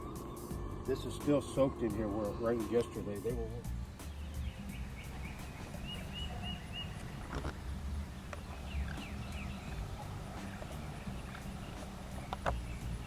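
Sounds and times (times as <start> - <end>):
bird chirping: 0.0 - 13.0
steady low rumble: 0.0 - 13.0
faint clicks: 10.4 - 12.7.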